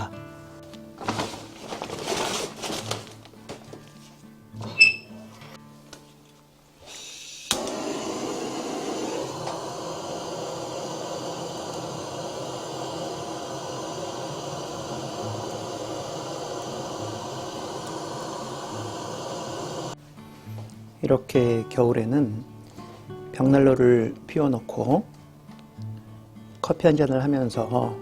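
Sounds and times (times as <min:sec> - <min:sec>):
fire hissing rush: 0:06.8 - 0:20.0.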